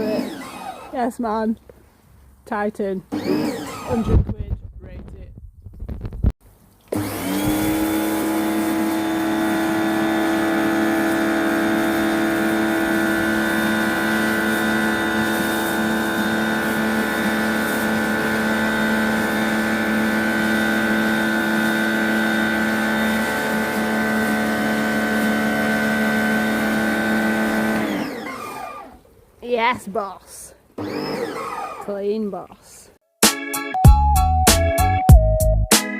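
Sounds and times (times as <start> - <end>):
pressure washer motor and pump hum: 0.0 - 1.0, 6.9 - 29.1, 30.8 - 32.0.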